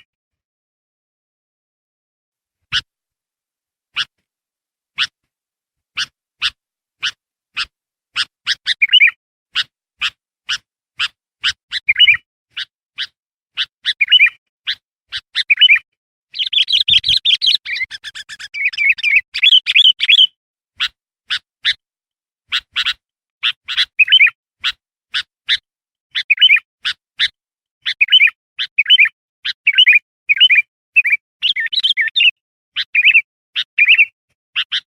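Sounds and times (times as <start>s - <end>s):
bird chipping calls: 5.0s - 5.2s, 5.9s - 21.8s, 22.5s - 34.9s
bird warbling phrases: 6.0s - 9.7s, 13.9s - 15.8s, 16.4s - 20.9s, 26.2s - 26.6s
rapid chattering bird song: 6.0s - 21.8s, 22.5s - 34.9s.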